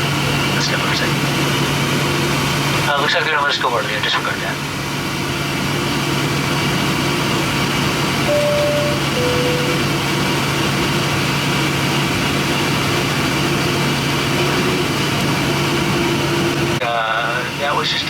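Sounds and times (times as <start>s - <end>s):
jet engines idling: 0.0s - 18.0s
two-note high-low chime: 8.3s - 9.9s.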